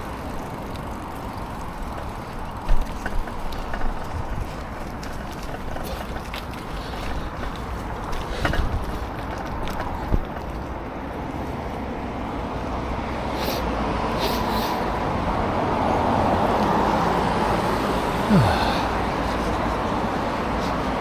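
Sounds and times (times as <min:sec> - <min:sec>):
vehicle passing: 0:12.1 - 0:21.0.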